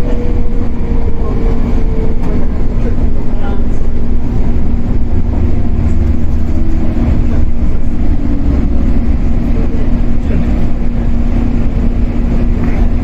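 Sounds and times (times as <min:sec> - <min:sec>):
constant hum: 0:00.0 - 0:13.0
train wheels rumbling: 0:00.0 - 0:13.0.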